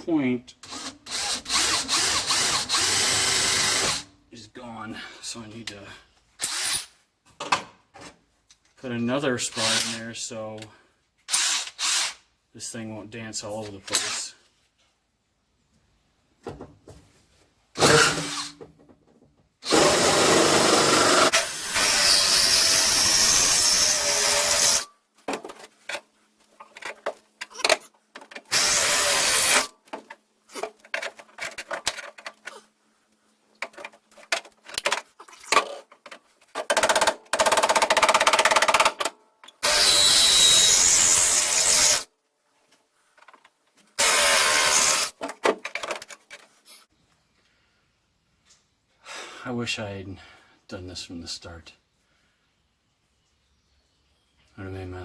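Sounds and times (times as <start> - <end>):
power drill cutting sheet steel: 0.7 - 4.0, 6.4 - 6.9, 9.6 - 10.0, 11.3 - 12.2, 17.8 - 18.6, 19.6 - 24.9, 28.5 - 29.7, 39.6 - 42.1, 44.0 - 45.2.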